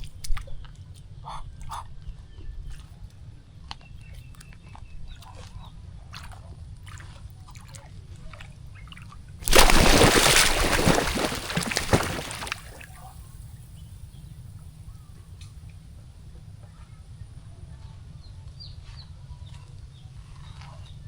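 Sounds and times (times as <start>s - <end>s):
water splashing and sloshing: 9.4s - 13.0s.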